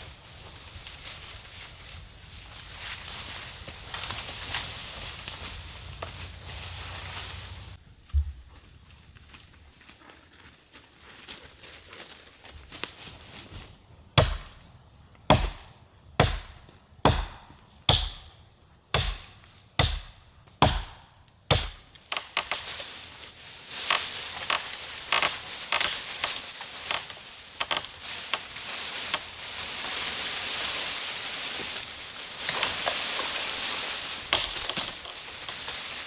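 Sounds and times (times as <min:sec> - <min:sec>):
chopping blows on wood: 0:14.2 - 0:14.6, 0:15.3 - 0:22.6.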